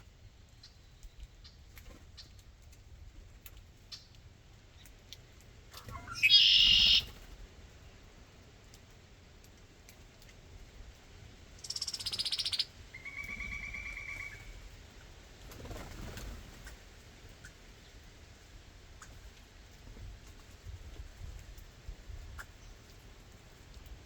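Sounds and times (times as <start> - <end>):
harsh buzzy bird call: 5.8 - 7.1
soft low bird call: 5.8 - 7.1
loud high bird call: 5.9 - 7.1
pulsed bird trill: 5.9 - 7.1.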